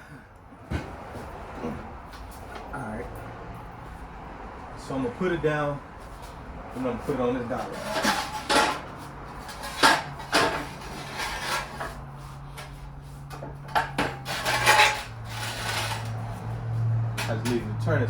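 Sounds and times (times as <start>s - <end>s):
metal clanks and knocks: 7.5s - 16.3s, 17.0s - 17.8s.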